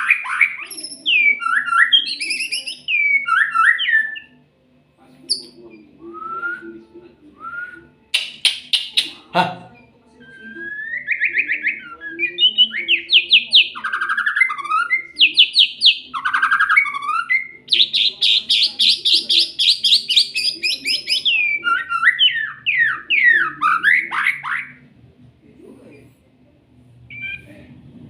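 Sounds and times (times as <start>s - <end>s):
songbird singing trills: 0.0s - 4.4s, 5.3s - 5.6s, 10.3s - 24.8s.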